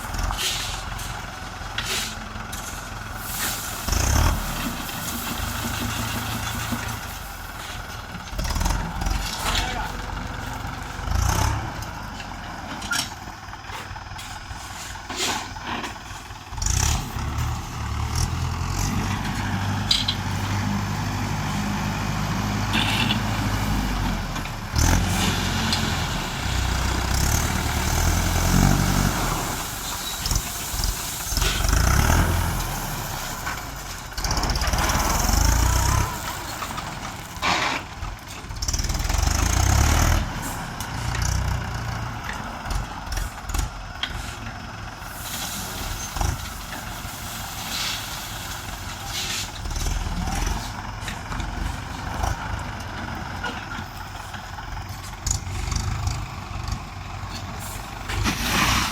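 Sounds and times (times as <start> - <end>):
tractor diesel engine working: 0.0 - 58.9.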